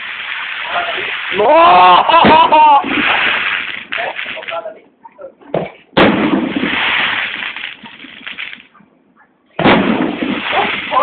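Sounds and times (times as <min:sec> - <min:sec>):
firework bang: 0:02.1 - 0:04.5, 0:05.6 - 0:08.6, 0:09.6 - 0:11.0.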